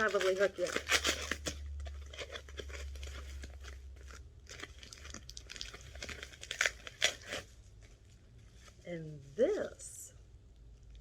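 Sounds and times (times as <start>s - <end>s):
packing material crinkling: 0.0s - 8.8s.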